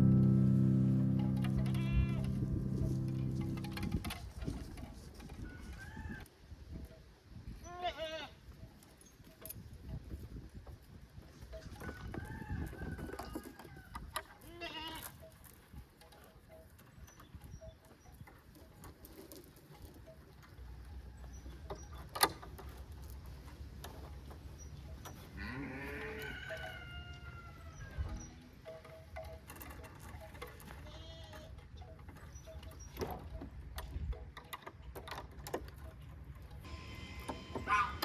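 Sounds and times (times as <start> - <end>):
goats bleating: 1.6 - 2.3, 36.7 - 38.0.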